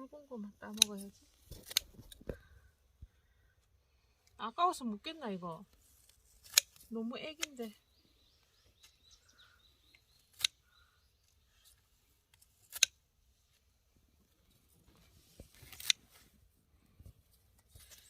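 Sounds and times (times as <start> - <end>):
scissors snipping plant stems: 0.6 - 2.2, 6.0 - 7.8, 10.2 - 10.6, 12.3 - 13.0, 15.6 - 16.1
faint bird chirps: 7.2 - 12.0.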